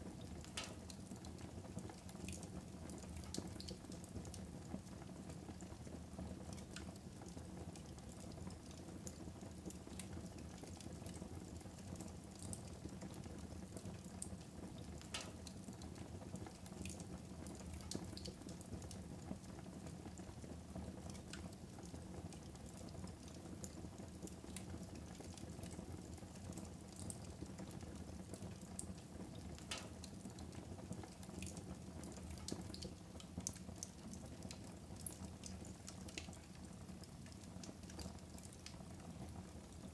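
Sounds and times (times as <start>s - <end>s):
fire crackling and popping: 0.2s - 4.4s, 14.8s - 15.8s, 28.5s - 39.8s.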